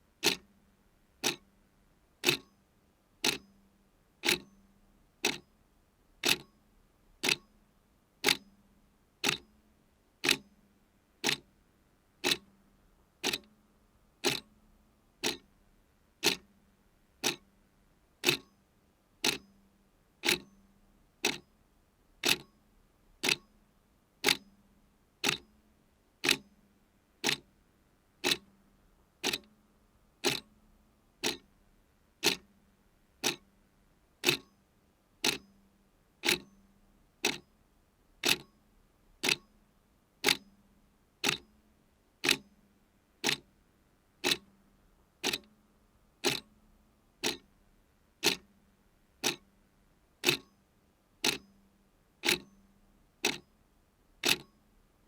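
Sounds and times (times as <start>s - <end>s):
clock ticking: 0.2s - 0.4s, 1.2s - 1.4s, 2.2s - 2.5s, 3.2s - 3.4s, 4.2s - 4.5s, 5.2s - 5.4s, 6.2s - 6.5s, 7.2s - 7.4s, 9.2s - 9.4s, 10.2s - 10.4s, 11.2s - 11.4s, 12.2s - 12.4s, 13.2s - 13.5s, 14.2s - 14.5s, 15.2s - 15.4s, 16.2s - 16.4s, 17.2s - 17.4s, 18.2s - 18.5s, 19.2s - 19.4s, 20.2s - 20.5s, 22.2s - 22.5s, 23.2s - 23.4s, 25.2s - 25.4s, 26.2s - 26.4s, 27.2s - 27.4s, 28.2s - 28.5s, 29.2s - 29.5s, 30.2s - 30.5s, 31.2s - 31.5s, 32.2s - 32.5s, 33.2s - 33.4s, 34.2s - 34.5s, 35.2s - 35.4s, 36.2s - 36.5s, 37.2s - 37.4s, 38.2s - 38.5s, 39.2s - 39.5s, 40.2s - 40.4s, 41.2s - 41.4s, 42.2s - 42.4s, 43.2s - 43.4s, 44.2s - 44.5s, 45.2s - 45.5s, 46.2s - 46.5s, 47.2s - 47.5s, 48.2s - 48.5s, 49.2s - 49.4s, 50.2s - 50.5s, 51.2s - 51.4s, 52.2s - 52.5s, 53.2s - 53.4s, 54.2s - 54.5s.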